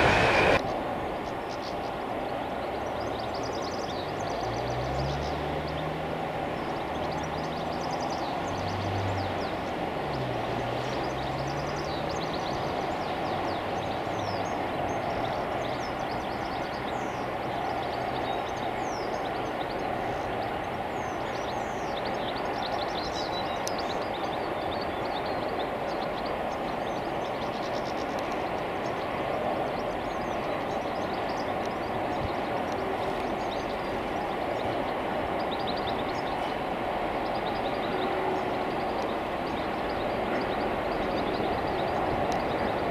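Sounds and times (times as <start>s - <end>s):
train wheels rumbling on rails: 0.0s - 0.6s.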